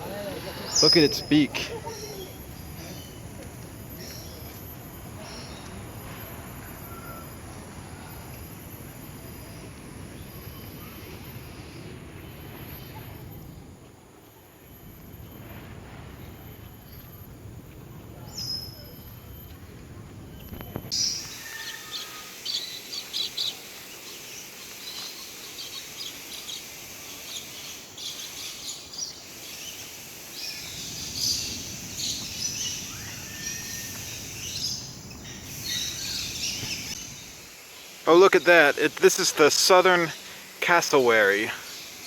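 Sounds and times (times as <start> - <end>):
steady background noise: 0.0 - 42.0
small birds chirping: 0.1 - 6.0, 20.4 - 42.0.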